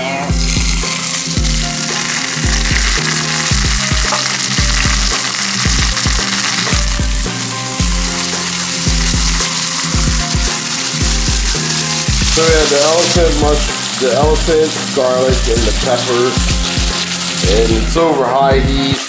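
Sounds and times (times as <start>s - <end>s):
peppers sizzling in hot oil: 0.0s - 19.0s.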